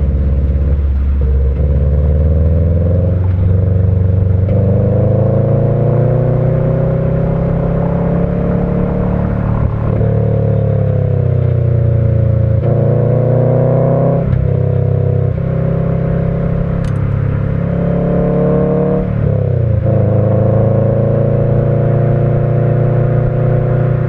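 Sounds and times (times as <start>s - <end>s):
boxer engine rumble under load: 16.4s - 18.2s.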